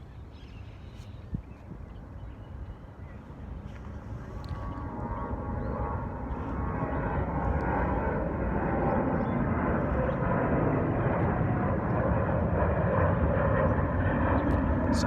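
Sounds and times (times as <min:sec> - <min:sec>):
jet airliner taking off: 0:03.3 - 0:15.0.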